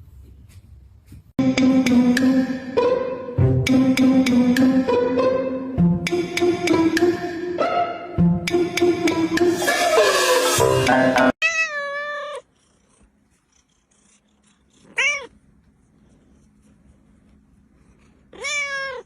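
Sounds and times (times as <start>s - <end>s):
music: 1.4s - 11.4s
cat meowing: 11.4s - 12.5s, 14.9s - 15.4s, 18.3s - 19.0s.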